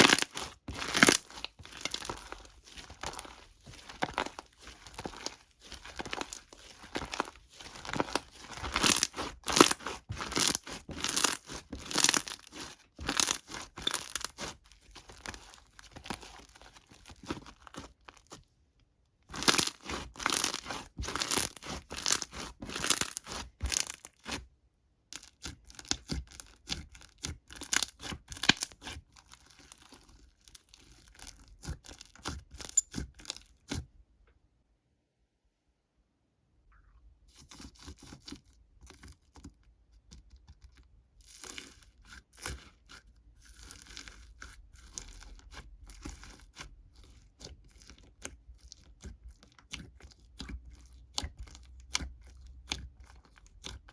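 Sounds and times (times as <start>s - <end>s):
crinkling and tearing: 0.0s - 18.4s, 19.3s - 24.4s, 25.2s - 33.7s.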